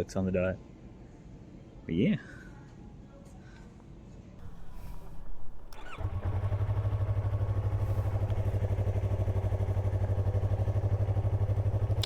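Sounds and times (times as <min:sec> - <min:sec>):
motorcycle engine starting and idling: 0:04.4 - 0:12.0.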